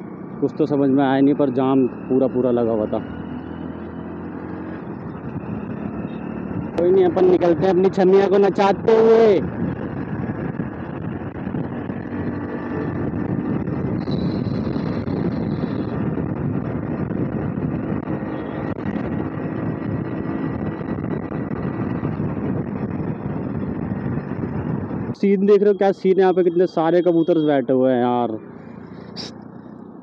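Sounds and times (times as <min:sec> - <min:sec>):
motorcycle engine running: 0:02.8 - 0:25.1
wind rushing over microphone: 0:03.0 - 0:26.4.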